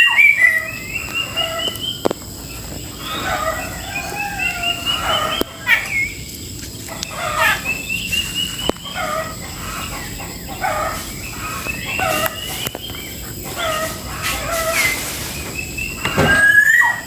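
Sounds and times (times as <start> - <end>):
birds calling: 0.0 - 17.0.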